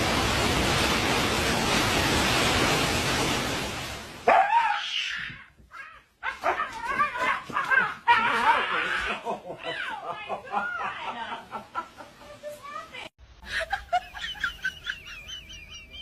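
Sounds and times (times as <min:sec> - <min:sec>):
steady rushing noise: 0:00.0 - 0:04.2.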